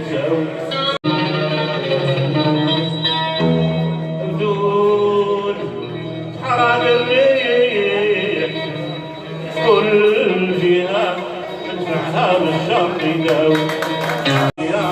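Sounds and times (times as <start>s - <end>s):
sustained instrumental accompaniment: 0.0s - 14.9s.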